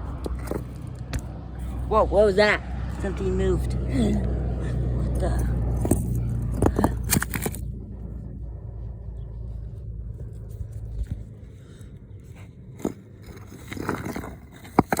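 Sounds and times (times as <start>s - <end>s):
sharp clicks and scrapes: 0.0s - 1.8s, 5.0s - 7.8s, 10.1s - 15.0s
low engine hum: 0.0s - 15.0s.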